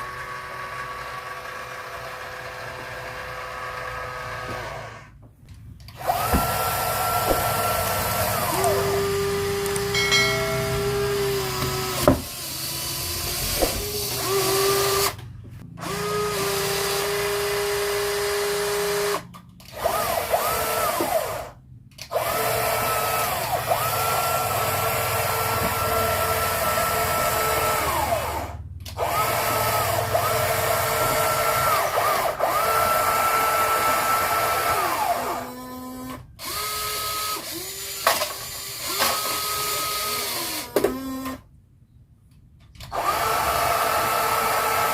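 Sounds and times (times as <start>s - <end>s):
small electric gear motors whining: 5.8s - 41.5s.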